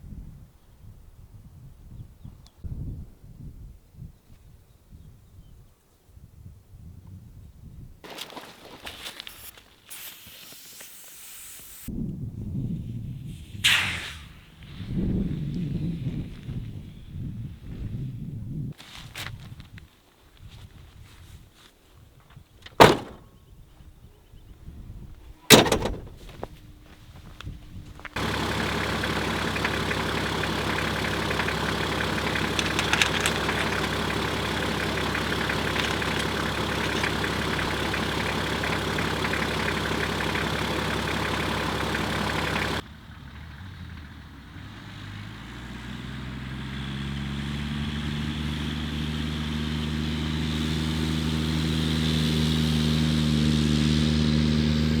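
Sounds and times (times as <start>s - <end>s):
car engine running: 22.8s - 23.3s, 25.5s - 55.0s
low engine hum: 22.8s - 23.4s, 24.8s - 55.0s.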